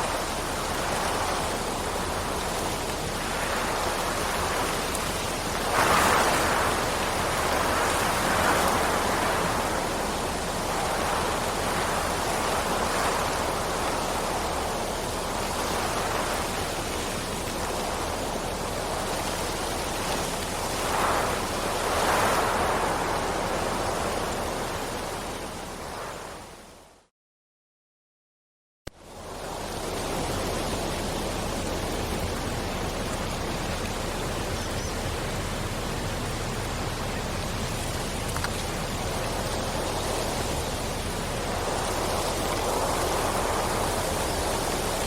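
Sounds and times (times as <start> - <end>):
heavy rain: 0.0 - 26.9, 28.9 - 45.0.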